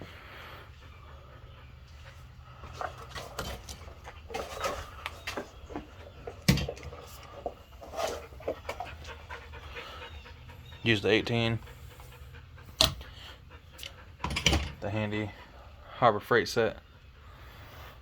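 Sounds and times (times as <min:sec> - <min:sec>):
metal tools clinking and knocking: 0:14.2 - 0:14.8.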